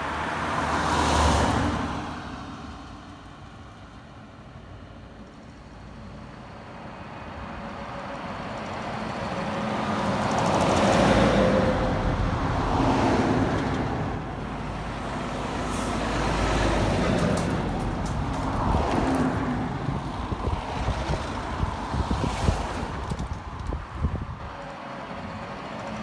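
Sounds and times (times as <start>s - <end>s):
heavy trucks passing: 0.0s - 26.0s
wind buffeting microphone: 17.0s - 24.6s.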